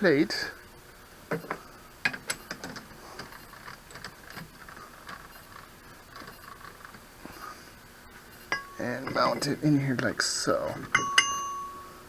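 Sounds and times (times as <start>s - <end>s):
metal parts clicking and knocking: 1.3s - 7.0s, 8.5s - 11.6s.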